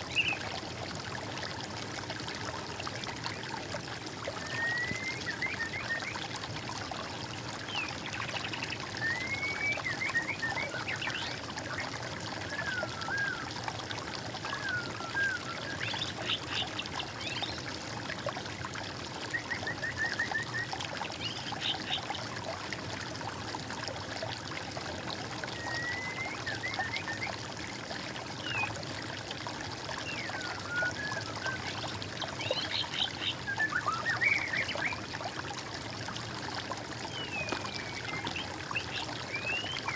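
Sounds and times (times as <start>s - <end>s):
water trickling: 0.0s - 39.9s
songbirds singing: 14.4s - 17.7s, 30.0s - 35.1s, 37.0s - 39.9s.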